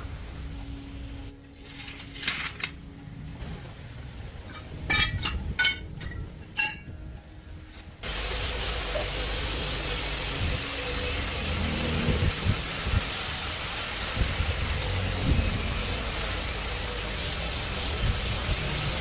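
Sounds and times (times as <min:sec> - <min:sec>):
steel tools clinking: 0:04.5 - 0:07.3
loud mechanical noise: 0:08.0 - 0:19.0.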